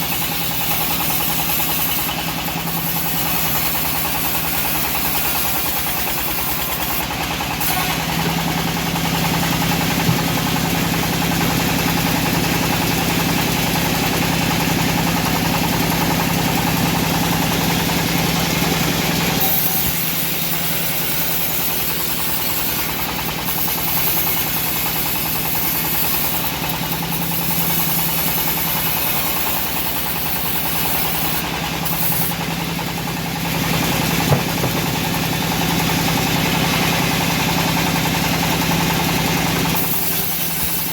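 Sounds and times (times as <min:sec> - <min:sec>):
bandsaw blade noise: 0:00.0 - 0:40.9
engine hum: 0:00.0 - 0:40.9.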